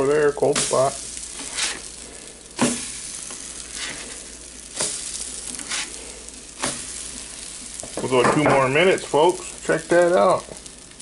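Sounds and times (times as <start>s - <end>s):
french toast sizzling on griddle: 0.0s - 11.0s
spatula scraping and tapping: 1.3s - 1.9s, 2.6s - 6.0s.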